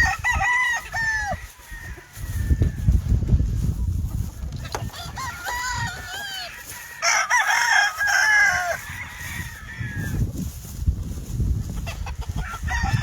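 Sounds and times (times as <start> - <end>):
roosters crowing: 0.0 - 10.7, 11.6 - 13.0.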